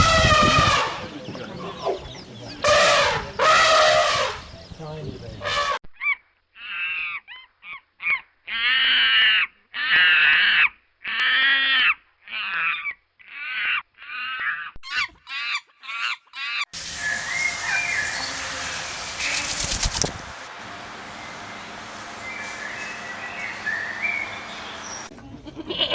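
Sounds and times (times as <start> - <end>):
outdoor background noise: 0.0 - 25.9
bird harsh calls: 11.7 - 20.4, 21.3 - 25.1
faint chirping: 16.8 - 20.4.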